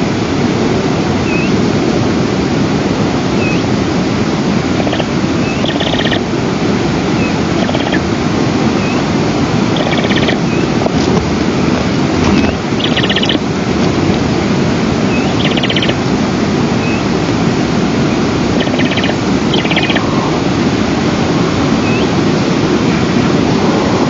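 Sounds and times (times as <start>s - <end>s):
wind rushing over microphone: 0.0s - 24.0s
small birds trilling and chirping: 1.2s - 1.6s, 3.4s - 3.7s, 4.7s - 6.3s, 7.1s - 8.0s, 8.7s - 9.1s, 9.7s - 10.8s, 12.2s - 13.4s, 15.0s - 16.0s, 16.8s - 17.2s, 18.0s - 20.4s, 21.7s - 24.0s.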